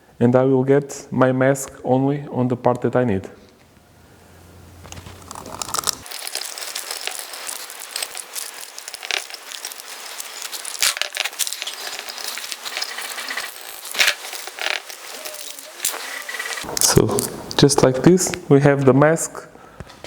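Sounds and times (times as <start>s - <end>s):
tape crinkling and scraping: 4.8s - 17.8s.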